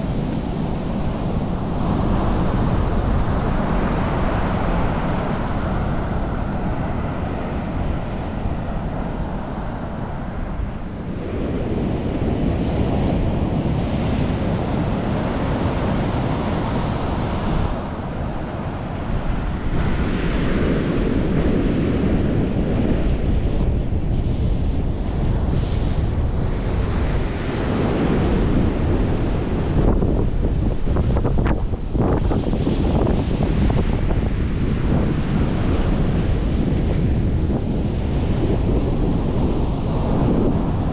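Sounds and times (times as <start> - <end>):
surf breaking on beach: 0.0 - 40.9
wind buffeting microphone: 0.0 - 40.9.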